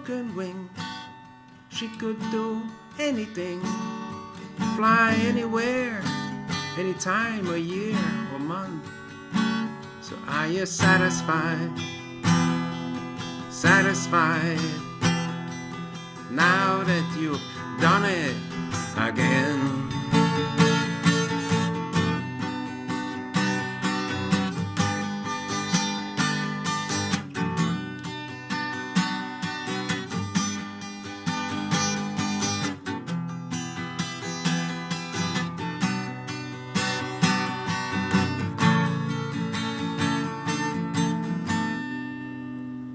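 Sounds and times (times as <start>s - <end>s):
acoustic guitar music: 0.0s - 42.9s.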